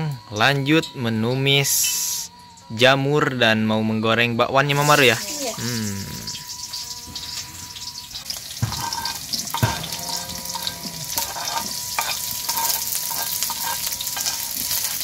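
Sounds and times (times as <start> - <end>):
vegetables sizzling in a wok: 4.7 - 15.0.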